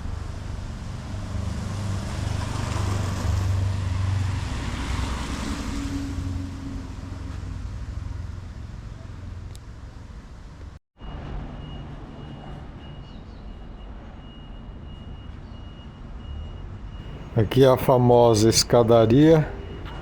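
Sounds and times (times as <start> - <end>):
car passing: 0.0 - 9.4, 17.0 - 20.0.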